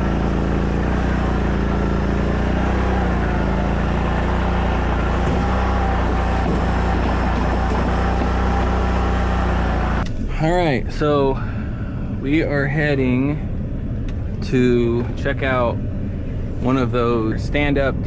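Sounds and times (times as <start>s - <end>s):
engine running steadily: 0.0s - 10.3s.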